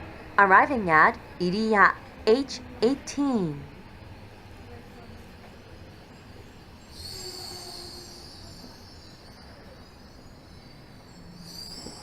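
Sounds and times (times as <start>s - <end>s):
low train rumble: 0.0s - 12.0s
high-pitched brake squeal: 6.0s - 12.0s.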